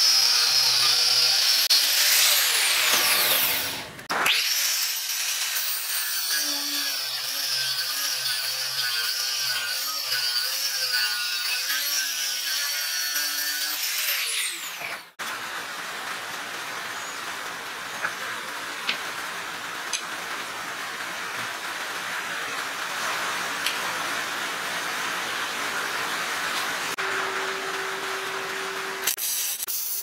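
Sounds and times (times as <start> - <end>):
angle grinder cutting steel: 0.0 - 15.2.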